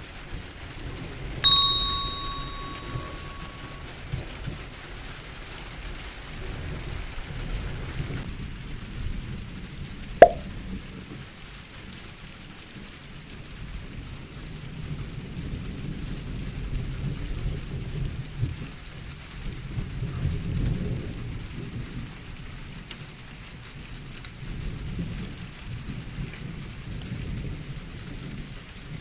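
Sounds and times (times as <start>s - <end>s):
sharp knock with ring: 1.4s - 3.7s, 10.2s - 10.5s.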